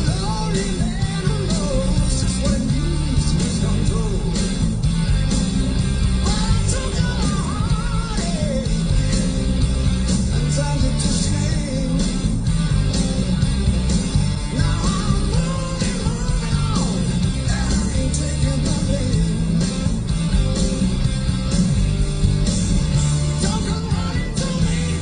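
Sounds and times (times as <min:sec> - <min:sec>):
hard rock song from car radio: 0:00.0 - 0:25.0.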